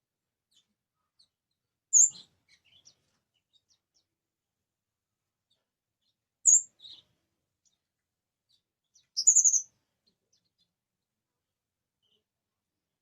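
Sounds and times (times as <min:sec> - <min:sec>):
faint bird chirps: 0:00.5 - 0:04.1, 0:05.5 - 0:07.9, 0:08.5 - 0:10.8, 0:12.0 - 0:12.3.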